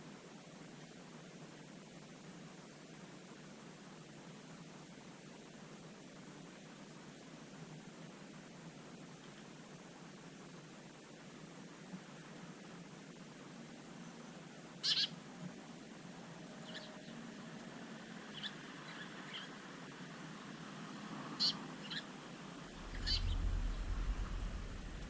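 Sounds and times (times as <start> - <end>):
birds short high calls: 14.8 - 15.2, 22.8 - 24.6
low rumble: 22.7 - 25.0.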